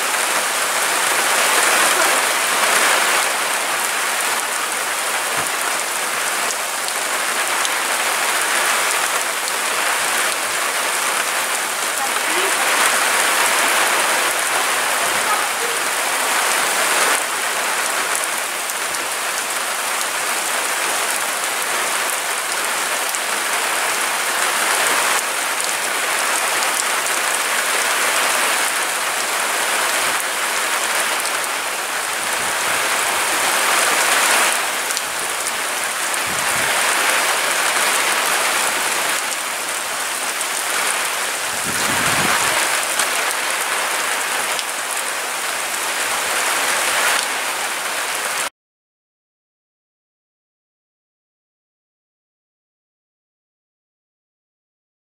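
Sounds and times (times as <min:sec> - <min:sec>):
strong gusting wind: 0:32.0 - 0:44.3.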